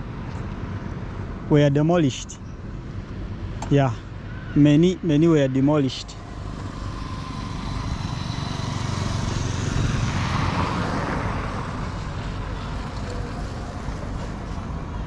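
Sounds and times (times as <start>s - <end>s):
vehicle passing by: 4.5s - 15.0s.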